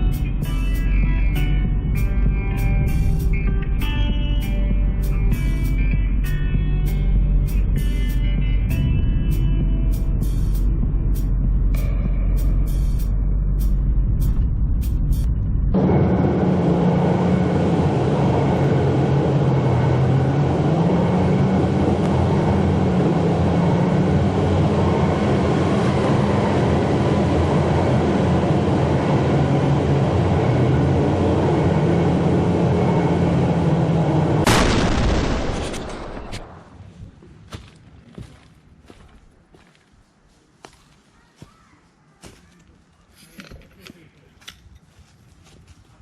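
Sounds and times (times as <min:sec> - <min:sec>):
vehicle engine running: 0:00.0 - 0:36.6.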